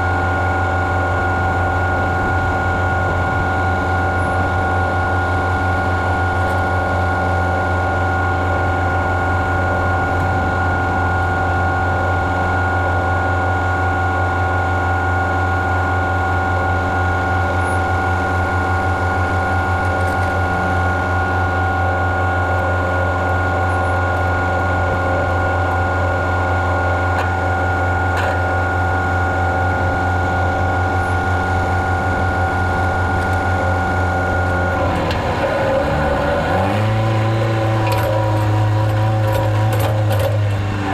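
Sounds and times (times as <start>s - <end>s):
farm machinery engine running: 0.0s - 40.9s
high mechanical whine: 0.0s - 40.9s
fast mechanical rattle: 34.4s - 40.9s.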